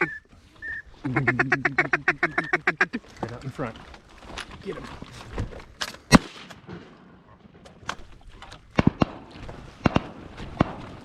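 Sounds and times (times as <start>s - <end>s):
shotgun shots: 6.1s - 7.6s, 8.7s - 11.0s.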